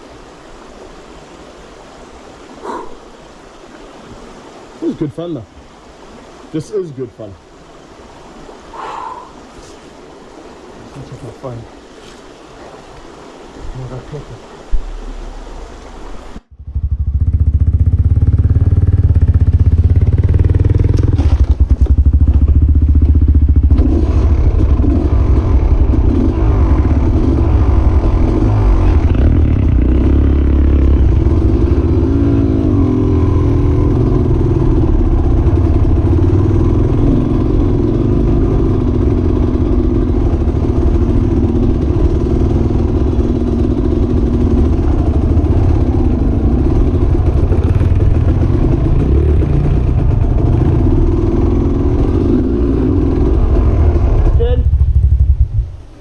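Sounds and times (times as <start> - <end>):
motorcycle engine revving: 16.4 - 56.0.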